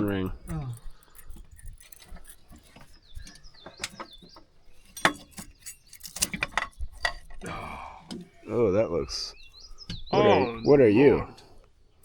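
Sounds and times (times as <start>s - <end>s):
metal clicks and knocks: 0.0s - 7.5s
bird chirping: 0.0s - 12.0s.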